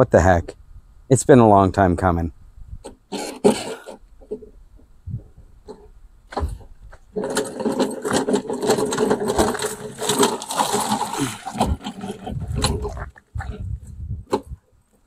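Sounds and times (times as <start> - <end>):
lawnmower engine running: 5.7 - 13.6.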